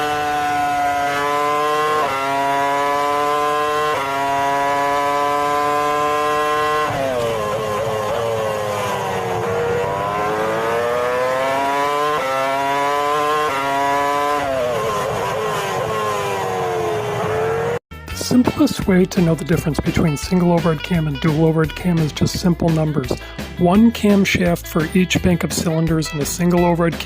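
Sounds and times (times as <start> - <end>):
engine running at high revs: 0.0 - 20.0.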